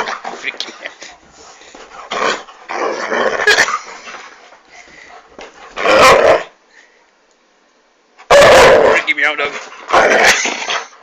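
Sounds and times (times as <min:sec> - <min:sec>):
dog barking and growling: 0:02.0 - 0:03.9, 0:05.7 - 0:06.6, 0:08.2 - 0:11.0.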